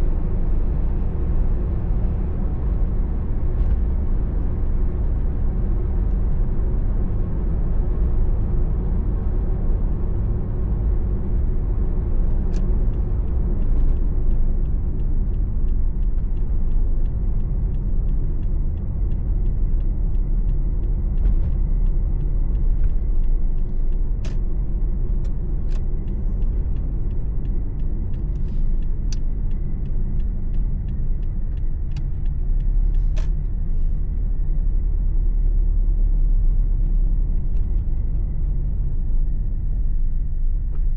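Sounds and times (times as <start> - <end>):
car engine rumble: 0.0 - 40.9
tyre road noise: 0.0 - 40.9
faint regular ticking: 12.9 - 33.5.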